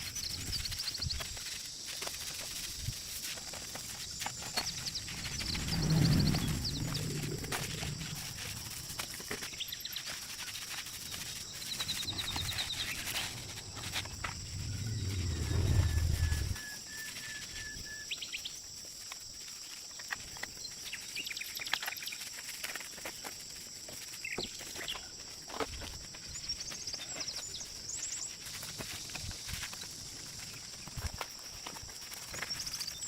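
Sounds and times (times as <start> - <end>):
low rumble: 4.6 - 9.1, 11.8 - 16.9
bird chirps: 11.2 - 18.6.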